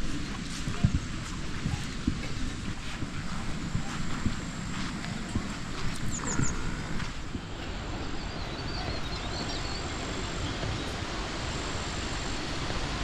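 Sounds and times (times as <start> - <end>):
wind buffeting microphone: 0.0 - 13.0
faint high chirps: 7.9 - 12.5.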